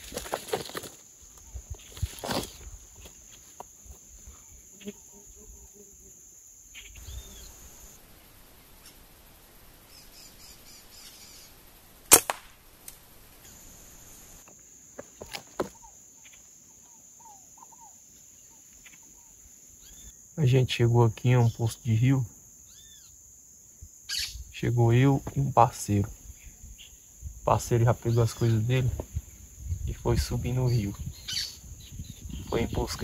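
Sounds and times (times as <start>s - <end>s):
bird chirps: 6.7s - 8.0s, 9.8s - 11.6s, 15.2s - 20.2s, 22.6s - 23.2s, 24.1s - 24.5s, 30.4s - 33.0s
air rifle shot: 12.1s - 12.6s.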